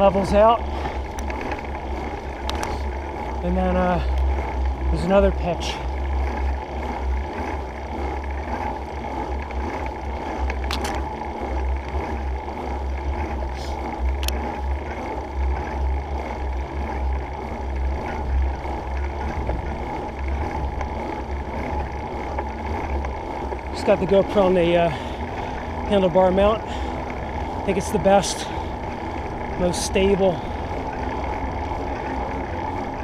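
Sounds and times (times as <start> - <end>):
wind buffeting camera: 0.0 - 3.4, 13.8 - 33.0
bicycle tyre noise: 0.0 - 33.0.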